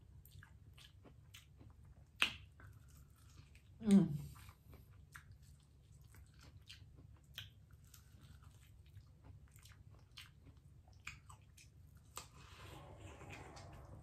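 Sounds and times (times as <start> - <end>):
biting and chewing corn: 0.1 - 14.0.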